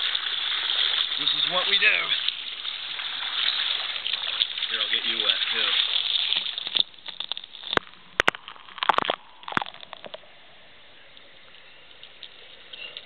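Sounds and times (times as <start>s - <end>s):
rushing water gush: 0.0s - 10.4s
faint steady hiss: 0.0s - 13.0s
water splashing and sloshing: 0.0s - 13.0s.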